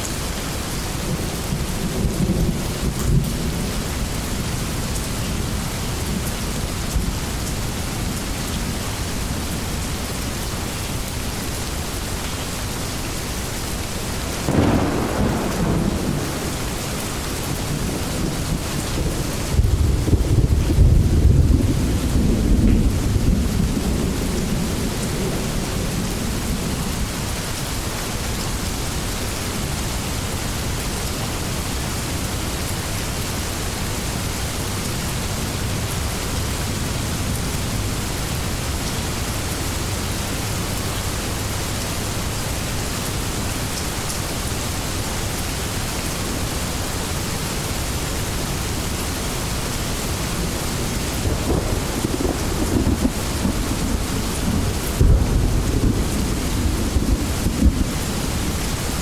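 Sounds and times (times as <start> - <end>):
heavy rain: 0.0 - 59.0
low rumble of thunder: 0.2 - 10.0, 13.7 - 27.6, 49.6 - 59.0.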